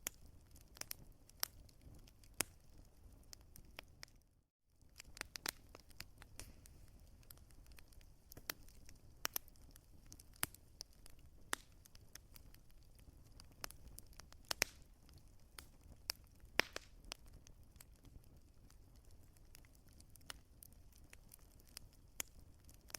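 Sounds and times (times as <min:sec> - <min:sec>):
wood fire crackling: 0:00.0 - 0:22.9
faint steady hiss: 0:04.8 - 0:13.9.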